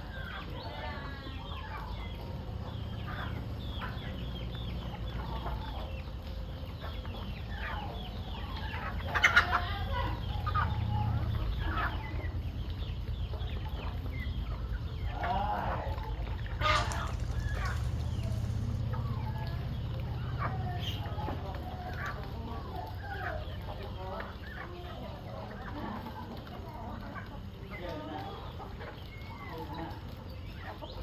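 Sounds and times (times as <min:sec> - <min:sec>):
chickens clucking: 0:00.0 - 0:31.0
low rumble: 0:09.8 - 0:23.2.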